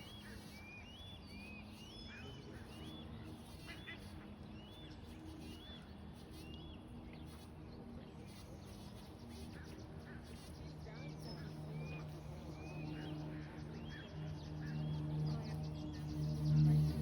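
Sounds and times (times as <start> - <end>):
songbird whistled calls: 0.0 - 3.1
faint outdoor background noise: 0.0 - 17.0.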